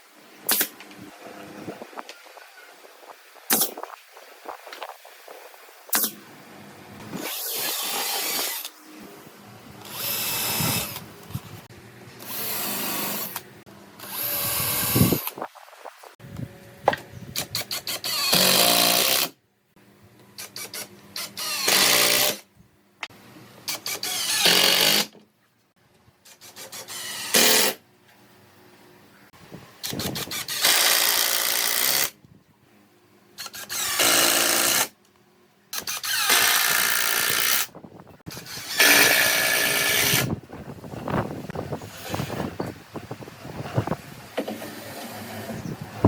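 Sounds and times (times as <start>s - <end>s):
power tool bursts: 23.7s - 25.1s, 26.5s - 27.8s, 33.4s - 34.9s, 35.7s - 37.7s, 38.3s - 40.3s.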